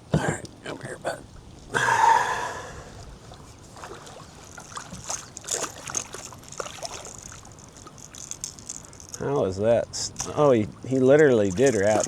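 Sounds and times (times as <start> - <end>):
water splashing and dripping: 2.8 - 12.0.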